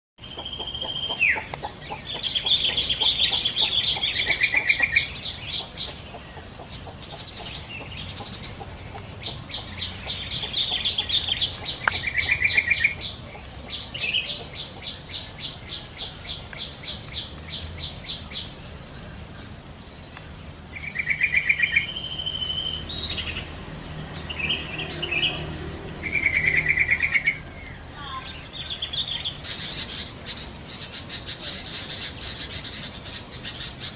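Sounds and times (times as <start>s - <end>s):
bulbuls chattering trills: 0.2s - 33.9s
sharp high bird notes: 11.7s - 12.3s.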